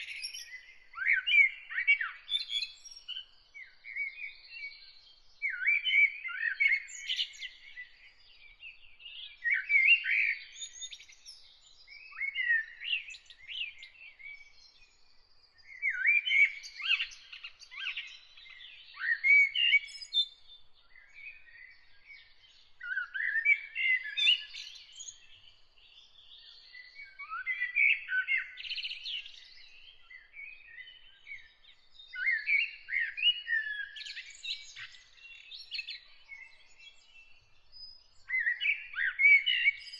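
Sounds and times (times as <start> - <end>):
songbird chirping and whistling: 15.6 - 20.3, 22.2 - 25.5, 38.1 - 39.9.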